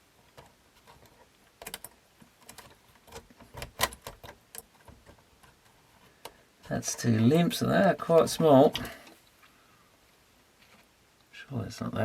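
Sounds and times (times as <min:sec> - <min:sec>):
small parts and tools clicking: 0:00.3 - 0:07.0.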